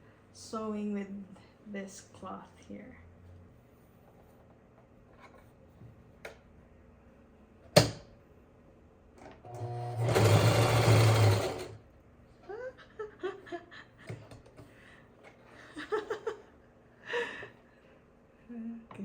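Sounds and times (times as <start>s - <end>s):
sewing machine stitching: 9.4s - 11.8s.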